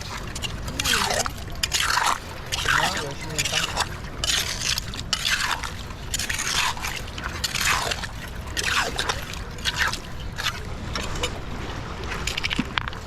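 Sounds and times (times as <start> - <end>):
hand tool raking wet mud: 0.0 - 11.4
wet squelching: 0.0 - 11.4.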